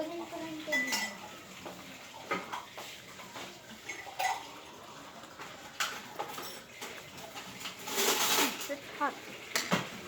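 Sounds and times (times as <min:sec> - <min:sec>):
dishes and cutlery clinking: 0:00.0 - 0:10.0.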